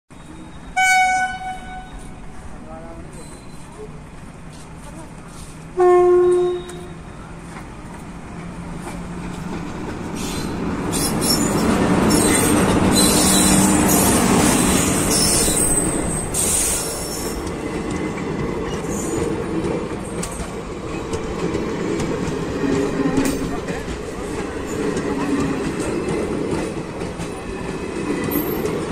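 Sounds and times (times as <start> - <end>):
high wheel squeals: 0.1 - 2.3, 3.0 - 3.9, 10.2 - 17.4
train rumbling past: 0.1 - 28.9
train horn: 0.7 - 2.2, 5.8 - 7.0.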